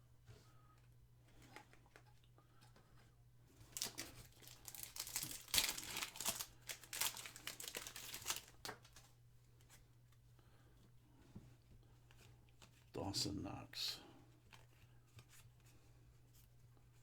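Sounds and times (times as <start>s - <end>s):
wrapper being torn and crinkled: 3.6s - 9.1s.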